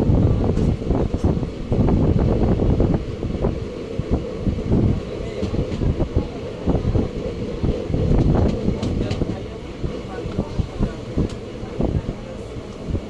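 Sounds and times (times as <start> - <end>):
train rumbling: 0.0 - 13.0
wheels knocking over rail joints: 4.7 - 11.6.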